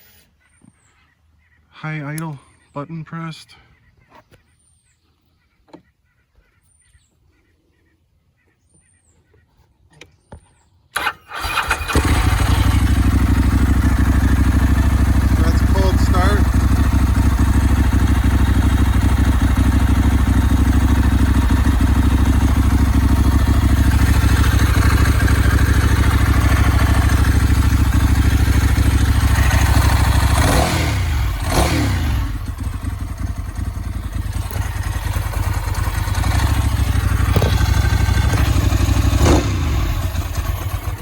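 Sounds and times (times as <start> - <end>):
motorcycle engine fast idle: 11.0 - 41.0.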